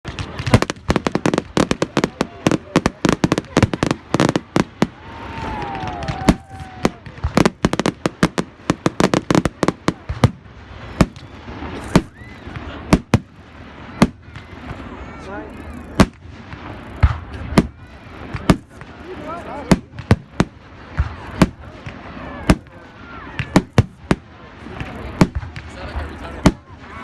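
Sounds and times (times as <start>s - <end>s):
fireworks bangs: 0.0s - 27.0s
fireworks crackling: 0.0s - 27.0s
falling firework whistle: 1.0s - 10.2s, 10.8s - 13.3s.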